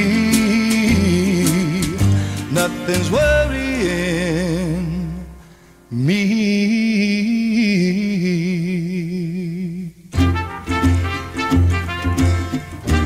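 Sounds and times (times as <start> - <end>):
pop band playing: 0.0 - 4.1, 10.2 - 13.0
man singing with vibrato: 0.0 - 12.0.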